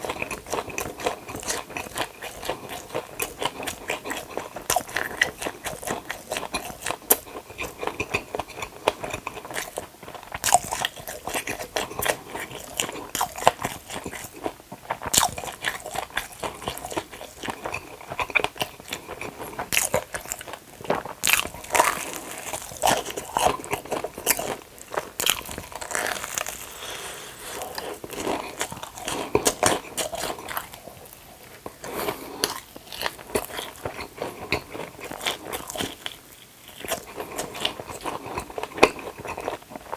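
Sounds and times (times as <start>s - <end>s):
wet chewing: 0.0s - 39.9s
crisp crunching bites: 21.2s - 30.8s.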